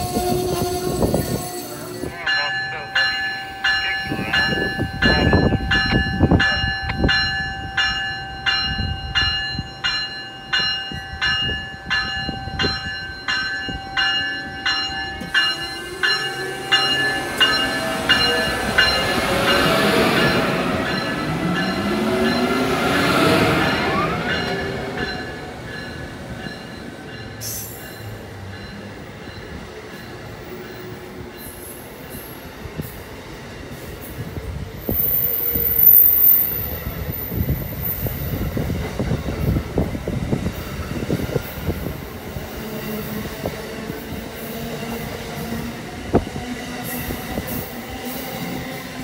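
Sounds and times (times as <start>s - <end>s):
locomotive bell ringing: 0.0s - 32.2s
train wheels squealing: 27.3s - 28.2s, 34.8s - 38.6s.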